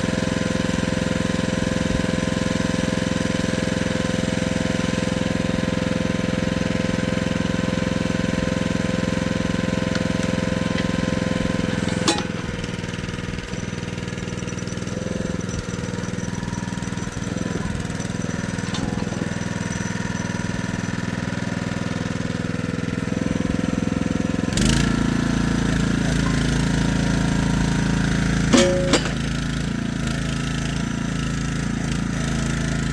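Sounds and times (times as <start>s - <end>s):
excavator engine running: 6.0s - 32.9s
machine clunk: 11.6s - 12.7s, 17.3s - 19.9s, 28.4s - 29.6s.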